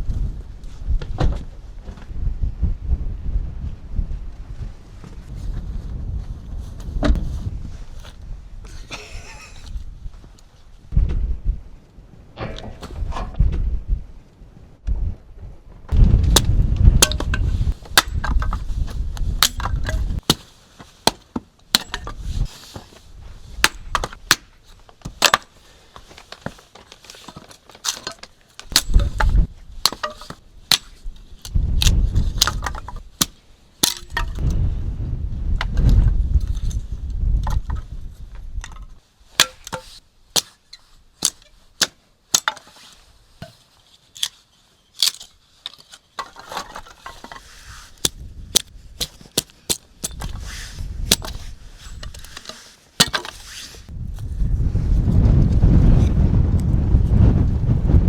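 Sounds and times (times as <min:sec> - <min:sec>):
wind buffeting the microphone: 0:00.0 - 0:20.2, 0:28.7 - 0:33.2, 0:34.1 - 0:39.0, 0:47.6 - 0:49.0, 0:50.0 - 0:52.3, 0:53.8 - 0:58.0.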